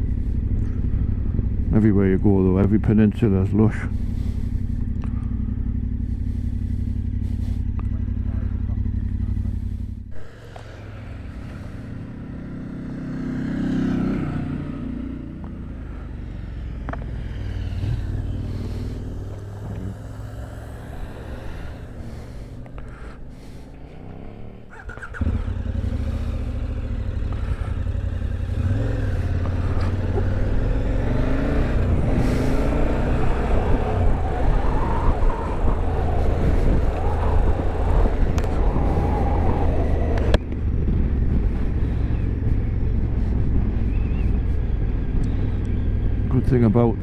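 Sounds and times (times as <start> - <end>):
motorcycle engine rumbling: 0.0 - 47.0
wind noise: 28.5 - 46.3.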